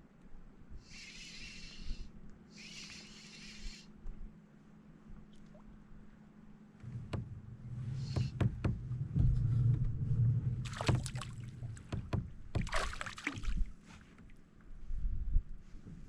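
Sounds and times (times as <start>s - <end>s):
knocks and clicks on kayak hull: 6.8s - 10.0s, 10.6s - 13.5s
low rumble: 6.8s - 13.8s.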